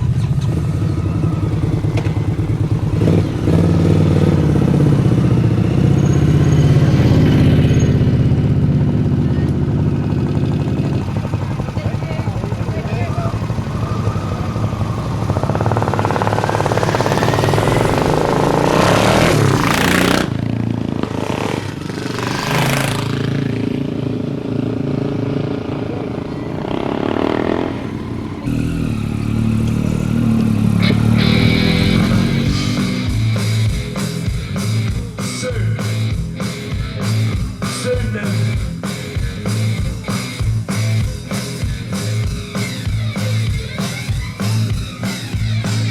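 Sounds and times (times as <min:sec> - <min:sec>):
motorcycle engines revving past: 0:00.0 - 0:45.9
rock music with drum beat: 0:30.6 - 0:45.9.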